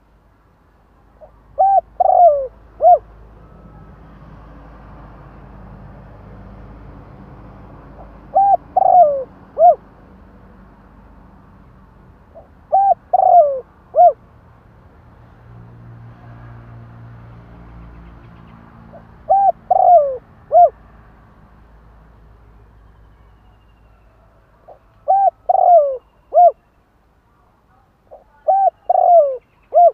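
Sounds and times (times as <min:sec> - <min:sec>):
dove cooing: 0:01.2 - 0:03.9, 0:08.0 - 0:09.8, 0:12.4 - 0:14.2, 0:18.9 - 0:20.8, 0:24.7 - 0:26.6, 0:28.1 - 0:29.9.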